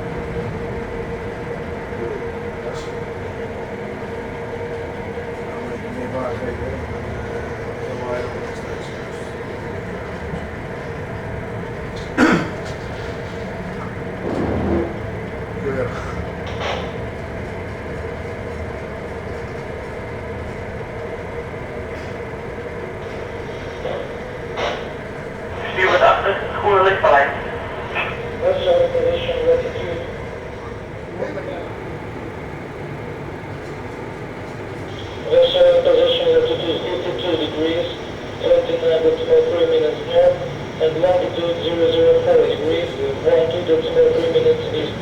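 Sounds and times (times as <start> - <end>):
ship machinery drone: 0.0 - 45.0
mid-pitched hum: 21.3 - 31.8.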